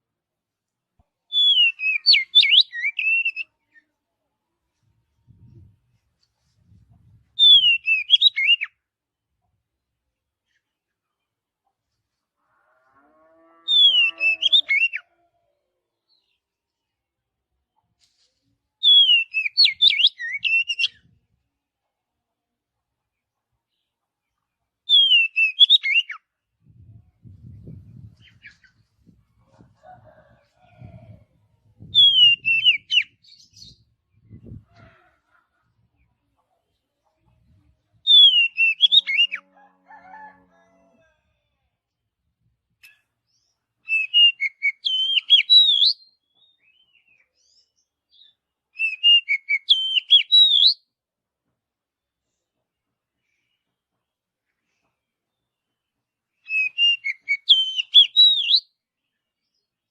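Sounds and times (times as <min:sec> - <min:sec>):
bird whistling song: 0:01.3 - 0:03.5, 0:07.4 - 0:08.8, 0:18.8 - 0:21.1, 0:24.9 - 0:26.2, 0:31.8 - 0:33.8, 0:38.0 - 0:39.4, 0:43.8 - 0:47.2, 0:48.2 - 0:50.8, 0:56.4 - 0:58.7
bird singing whistled phrase: 0:32.0 - 0:33.1, 0:38.1 - 0:39.3, 0:43.9 - 0:46.1, 0:48.8 - 0:50.8, 0:56.5 - 0:58.6.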